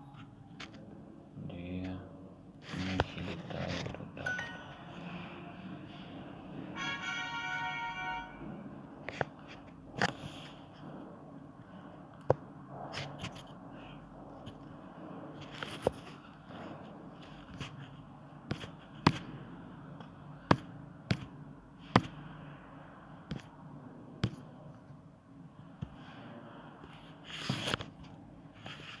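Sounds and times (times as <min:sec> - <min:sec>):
rustling scrape: 0:28.5 - 0:29.0.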